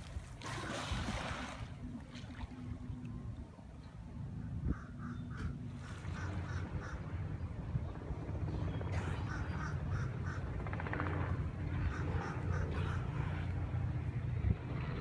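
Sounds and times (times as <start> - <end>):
steady low rumble: 0.0 - 15.0
bird nasal calls: 4.4 - 7.1, 8.8 - 10.6, 11.7 - 13.2.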